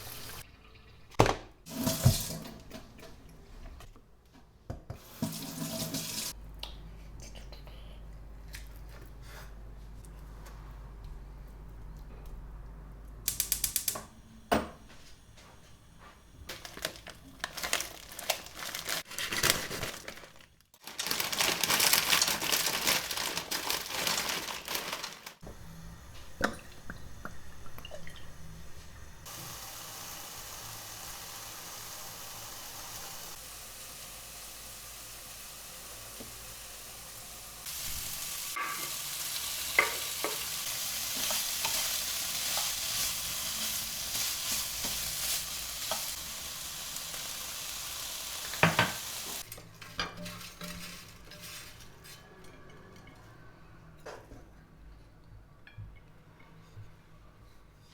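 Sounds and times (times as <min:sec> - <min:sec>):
food sizzling in a pan: 0:00.0 - 0:00.4, 0:29.2 - 0:49.5
utensils and dishes clicking: 0:13.3 - 0:14.1.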